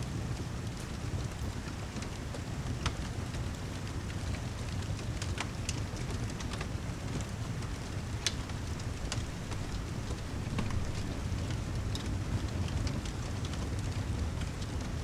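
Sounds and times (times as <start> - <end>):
steady rain: 0.0 - 15.0
fireplace crackling and popping: 0.7 - 15.0.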